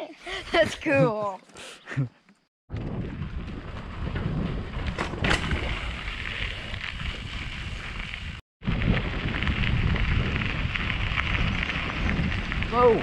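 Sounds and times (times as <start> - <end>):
wind buffeting microphone: 2.7 - 13.0
tyres rolling on gravel: 3.0 - 13.0.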